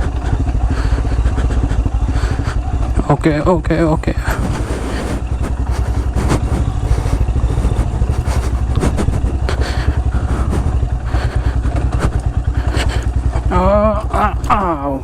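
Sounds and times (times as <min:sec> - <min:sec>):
knocks and rattles: 0:00.0 - 0:14.7
motorcycle engine running: 0:00.0 - 0:15.0.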